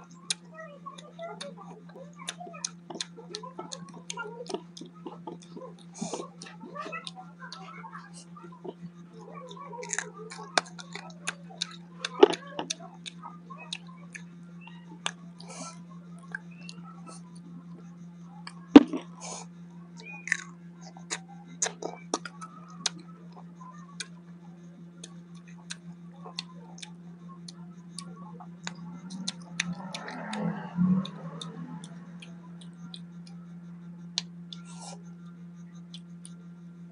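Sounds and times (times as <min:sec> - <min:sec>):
low hum: 0:00.0 - 0:36.9
person chewing crunchy food: 0:01.4 - 0:07.6, 0:09.4 - 0:13.8, 0:20.0 - 0:24.1, 0:28.0 - 0:33.4
mouth clicks and smacks: 0:16.2 - 0:17.4, 0:20.0 - 0:24.2, 0:25.0 - 0:33.4.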